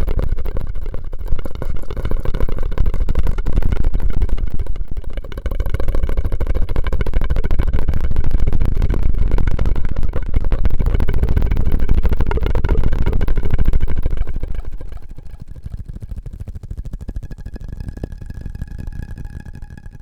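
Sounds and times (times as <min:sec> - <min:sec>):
low rumble: 0:06.4 - 0:19.1.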